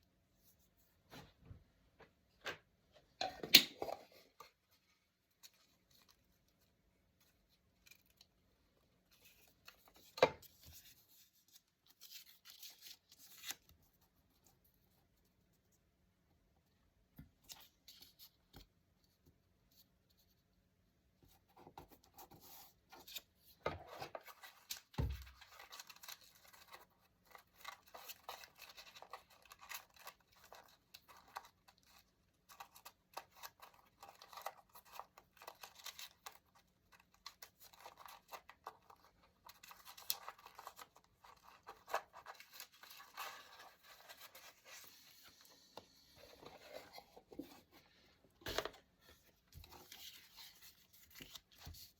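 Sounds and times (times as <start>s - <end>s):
scissors snipping paper: 25.4s - 43.7s.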